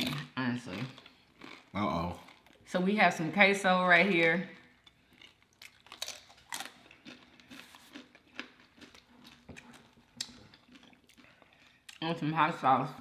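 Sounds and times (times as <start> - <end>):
chips crunching while chewed: 0.0 - 2.7, 4.5 - 12.1.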